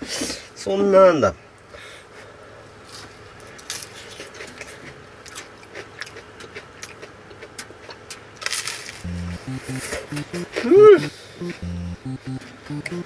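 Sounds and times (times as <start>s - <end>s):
crunchy chewing: 3.5s - 9.0s.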